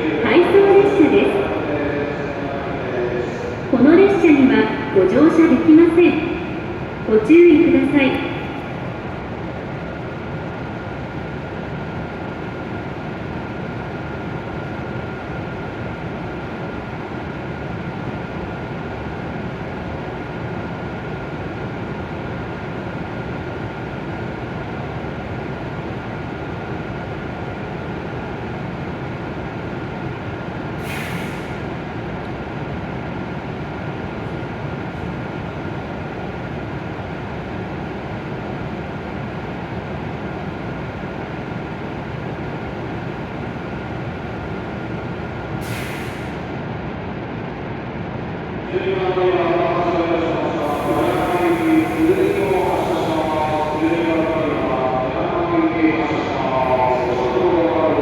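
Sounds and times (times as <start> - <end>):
train equipment hum with whine: 0.0 - 58.0
short hiss of air: 30.8 - 31.6, 45.6 - 46.4.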